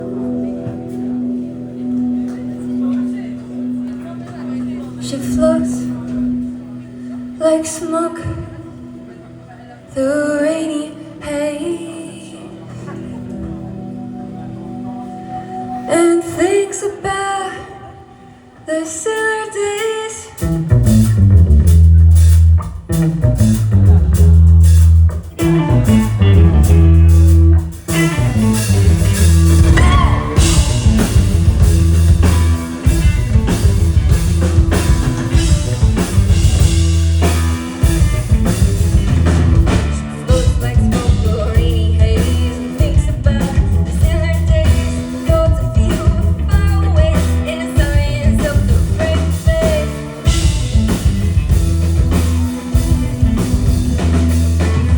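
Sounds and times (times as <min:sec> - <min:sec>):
live rock band playing: 0:00.0 - 0:08.4, 0:19.8 - 0:54.9
drums: 0:00.0 - 0:09.1, 0:18.5 - 0:54.9.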